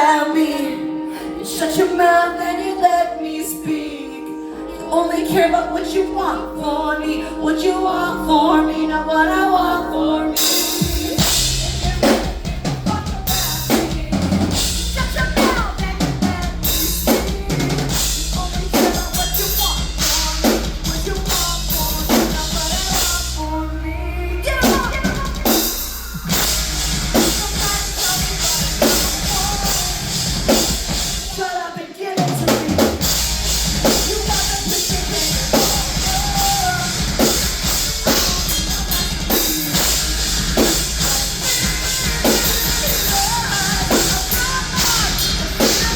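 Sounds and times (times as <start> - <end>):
live rock band playing: 0.0 - 45.9
drum kit beat: 10.4 - 23.5, 24.4 - 45.9.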